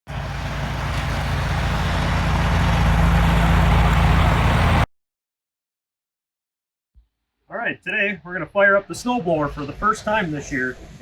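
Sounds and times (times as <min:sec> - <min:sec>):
snowblower engine running: 0:00.1 - 0:04.9.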